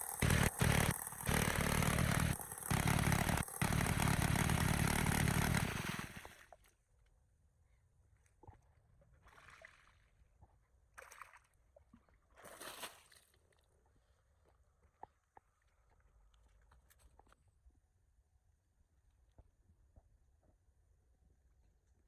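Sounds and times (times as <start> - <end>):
small water pump engine: 0.0 - 6.5.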